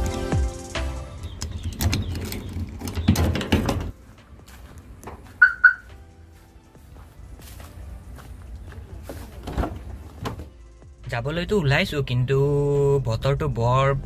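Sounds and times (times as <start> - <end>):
background music: 0.0 - 14.0
short electronic beeps: 5.4 - 5.9.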